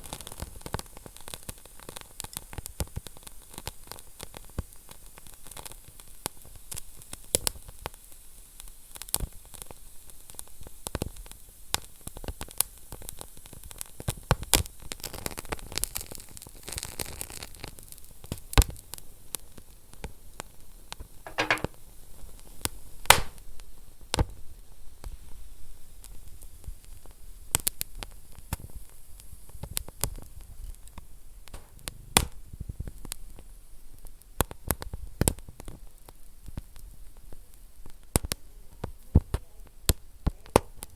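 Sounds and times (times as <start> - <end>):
low hiss of burning: 0.0 - 40.9
wood fire crackling and popping: 23.1 - 23.5, 26.0 - 40.9.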